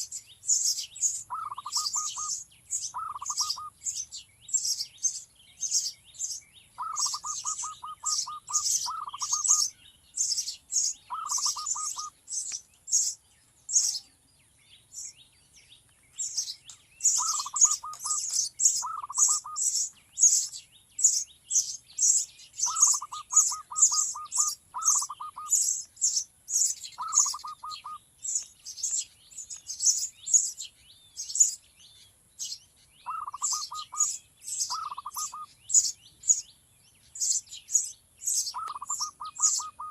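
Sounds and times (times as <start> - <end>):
birds chirping: 0.0 - 39.9
low rapid bird call: 17.1 - 21.2.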